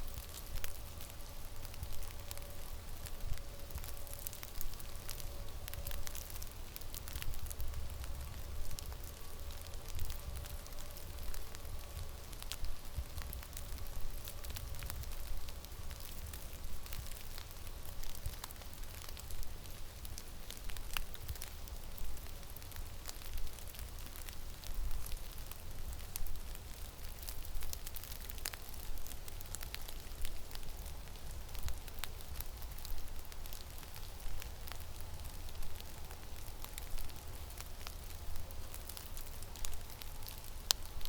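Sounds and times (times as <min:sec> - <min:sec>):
small ticks and crackles: 0:00.0 - 0:41.0.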